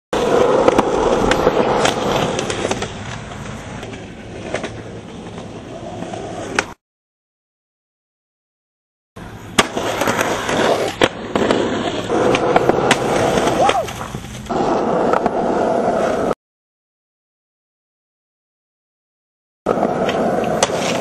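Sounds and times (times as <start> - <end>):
skateboard clacks: 0.2 - 6.8, 9.5 - 15.4, 19.7 - 21.0
skateboard rolling: 0.2 - 6.8, 9.2 - 16.4, 19.7 - 21.0.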